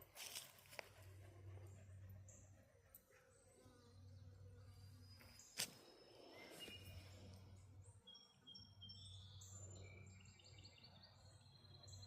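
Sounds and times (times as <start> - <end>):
faint bird chirps: 3.2 - 12.0.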